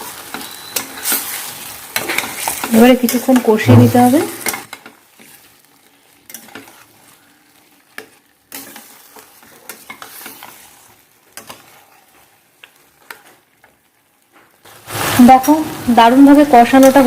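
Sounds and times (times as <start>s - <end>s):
chicken sizzling in a pan: 0.0s - 17.0s
spatula knocking and scraping pan: 0.8s - 5.4s.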